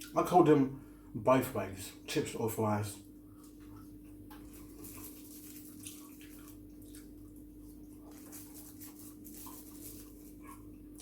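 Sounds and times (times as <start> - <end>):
steady low hum: 0.0 - 11.0
chewing sounds: 3.3 - 11.0.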